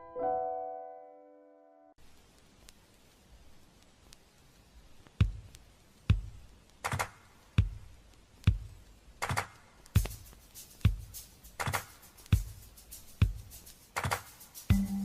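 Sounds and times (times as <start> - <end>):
kick drum thumps: 5.2 - 6.5, 7.6 - 8.8, 10.0 - 10.2, 10.8 - 11.1, 12.3 - 12.6, 13.2 - 13.5, 14.7 - 15.0
snare hits: 6.1 - 7.8, 8.5 - 12.6, 13.2 - 14.8.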